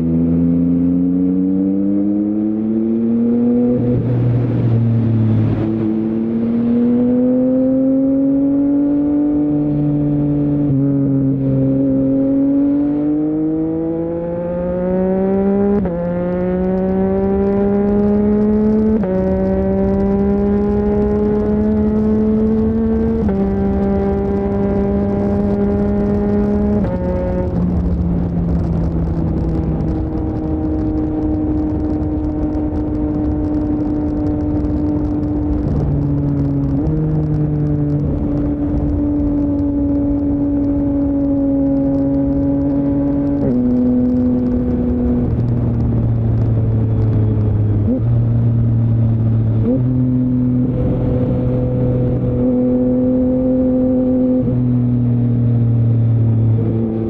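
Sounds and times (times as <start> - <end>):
motorcycle engine running: 14.2 - 57.0.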